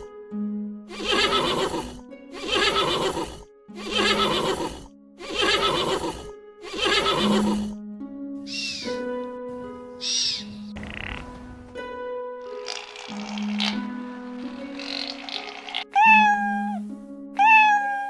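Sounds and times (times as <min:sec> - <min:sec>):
loud animal call: 0:00.9 - 0:07.8, 0:14.6 - 0:16.8, 0:17.4 - 0:18.0
background music: 0:07.4 - 0:17.4.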